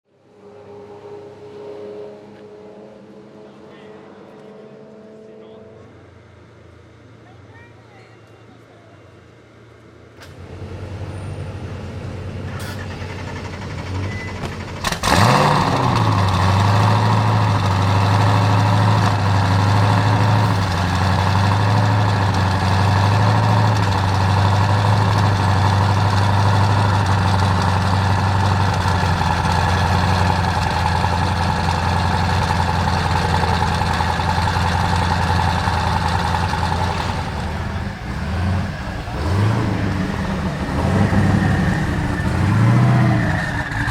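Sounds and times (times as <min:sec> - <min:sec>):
car engine starting and idling: 0:10.1 - 0:43.9.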